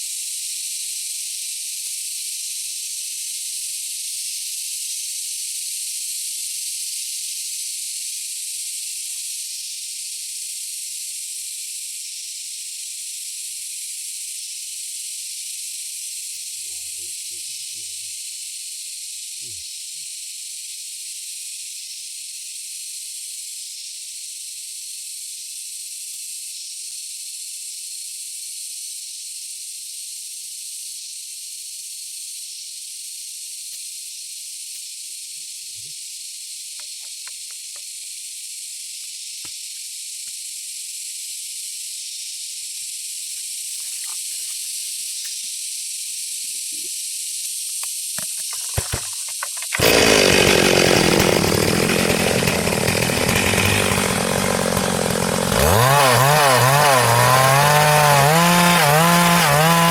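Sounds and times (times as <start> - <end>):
chainsaw cutting log: 48.2 - 59.9.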